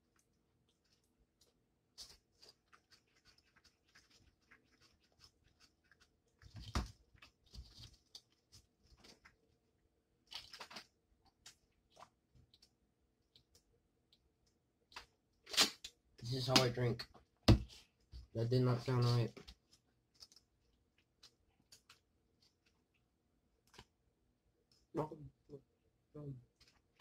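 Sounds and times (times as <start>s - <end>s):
wet chewing sounds: 0.0s - 9.6s, 10.2s - 15.9s.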